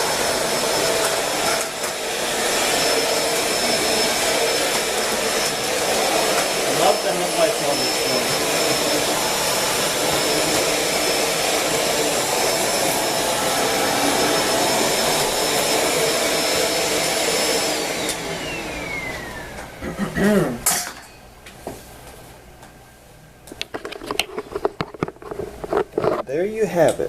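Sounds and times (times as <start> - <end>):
vacuum cleaner motor whine: 0.0 - 19.8.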